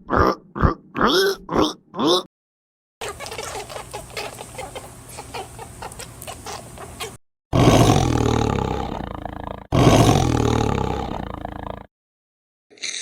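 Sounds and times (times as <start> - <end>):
loud deep roar: 7.6 - 11.9.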